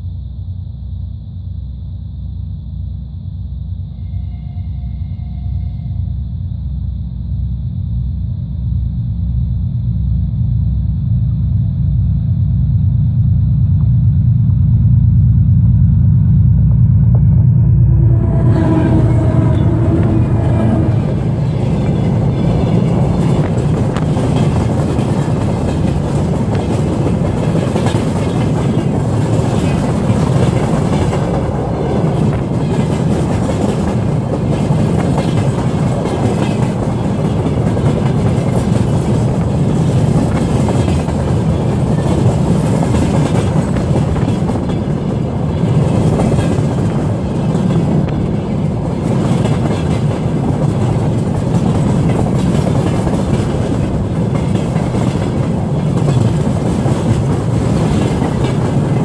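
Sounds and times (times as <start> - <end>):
freight train wheels rumbling: 13.7 - 59.0.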